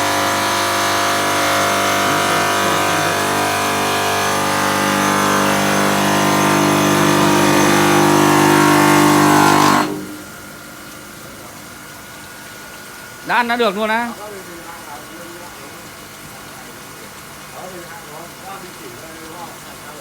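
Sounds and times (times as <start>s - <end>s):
stone-cutting machine whine: 0.0s - 10.2s.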